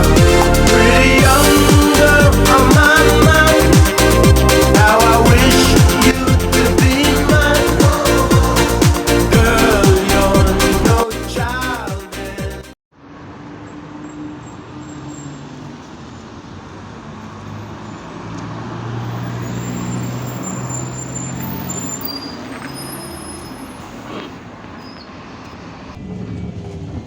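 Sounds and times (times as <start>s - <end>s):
bus engine running: 0.0s - 12.6s, 13.2s - 27.0s
road and cabin noise: 12.9s - 27.0s.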